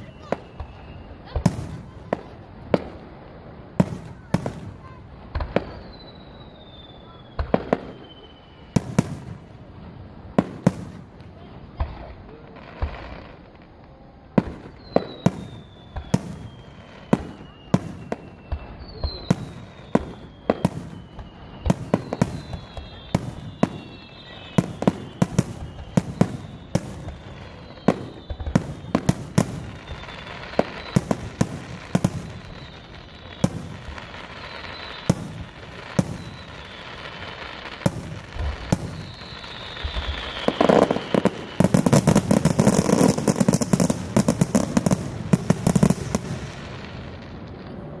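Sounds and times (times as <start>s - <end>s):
falling firework whistles: 0.0s - 9.7s, 14.3s - 48.0s
rapid crackling firework bursts: 0.0s - 48.0s
firework shells booming: 14.4s - 47.6s.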